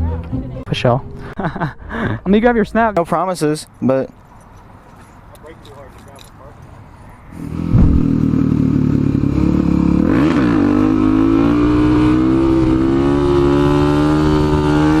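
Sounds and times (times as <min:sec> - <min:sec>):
motorcycle engine running: 0:07.4 - 0:10.1.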